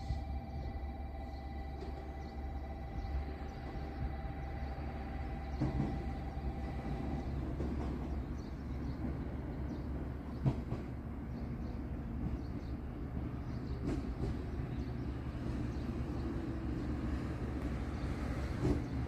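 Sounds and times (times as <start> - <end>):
steady whine: 0.0 - 7.1
train rumbling on rails: 0.0 - 19.0.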